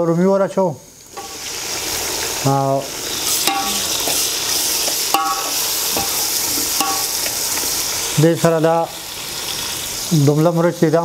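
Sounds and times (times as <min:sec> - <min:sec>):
tomatoes sizzling in hot oil: 0:00.0 - 0:11.0
metal ladle clinking against pot: 0:03.4 - 0:04.2, 0:04.9 - 0:07.3.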